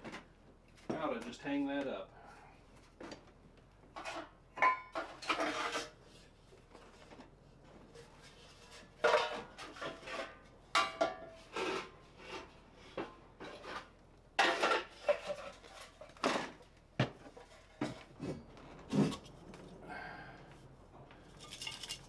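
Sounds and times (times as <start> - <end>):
hard objects clinking and clattering: 14.4 - 20.0, 21.1 - 22.0.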